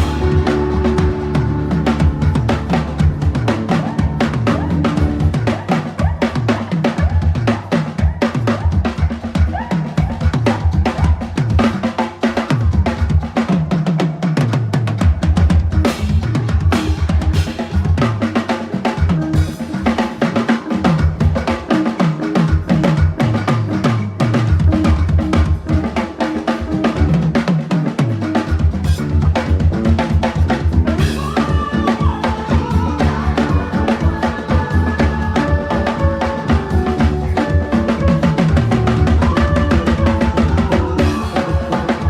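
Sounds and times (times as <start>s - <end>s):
held melodic notes: 0.0s - 7.4s, 15.8s - 42.0s
backing music with bass line: 0.0s - 13.8s, 14.9s - 42.0s
fast busy drumming: 0.0s - 42.0s.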